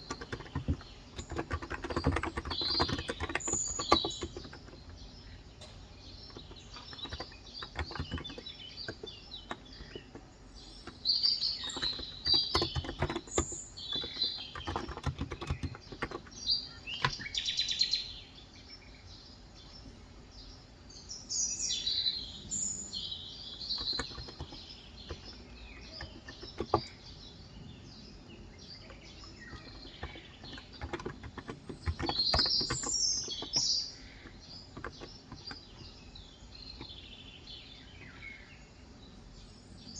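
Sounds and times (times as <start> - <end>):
keyboard keystrokes: 0.0 - 4.9, 6.3 - 10.2, 11.6 - 17.3, 23.6 - 27.0, 29.2 - 33.7, 34.3 - 35.9
birds chirping: 0.0 - 39.9.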